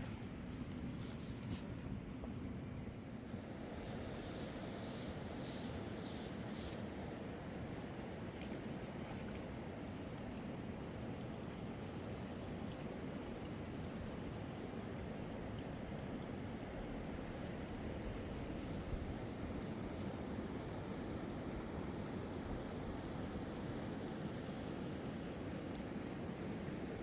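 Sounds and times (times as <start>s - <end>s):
small birds chirping: 3.8s - 7.2s.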